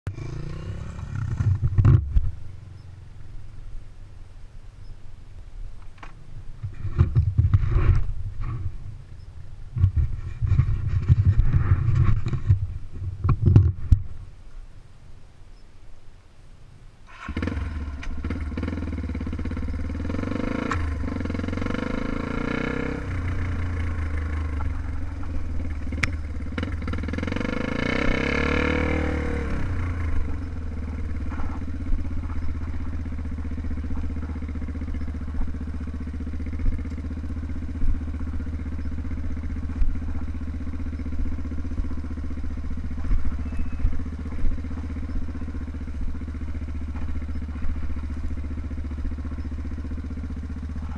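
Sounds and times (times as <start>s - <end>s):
motorcycle engine revving and idling: 0.1s - 14.2s, 17.1s - 50.9s
engine pops: 1.1s - 2.4s, 5.8s - 8.8s, 29.6s - 50.9s.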